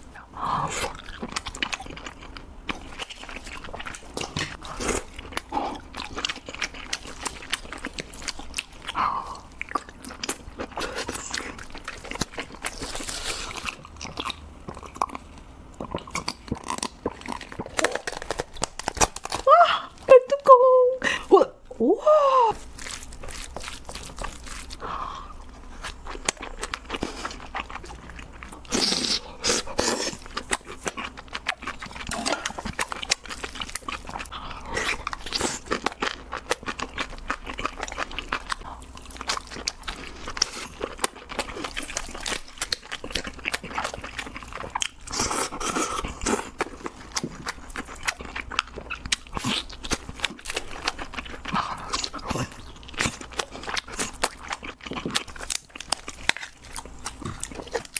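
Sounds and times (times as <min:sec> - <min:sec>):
chewing: 0:00.0 - 0:19.5, 0:22.6 - 0:57.9
crab shells cracking: 0:16.2 - 0:19.5.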